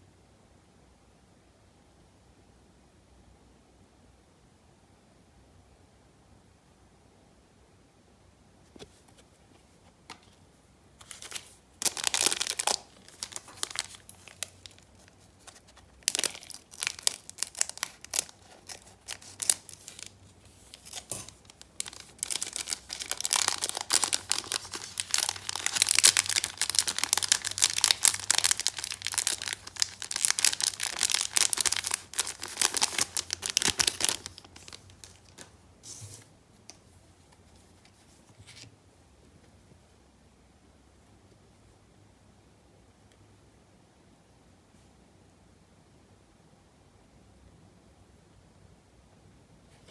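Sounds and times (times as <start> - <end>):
wrapper tearing and crumpling: 11.1 - 35.5.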